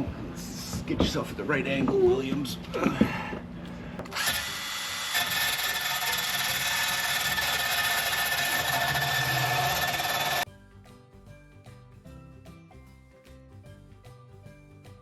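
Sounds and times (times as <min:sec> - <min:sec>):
power grinder on metal: 0:04.1 - 0:10.4.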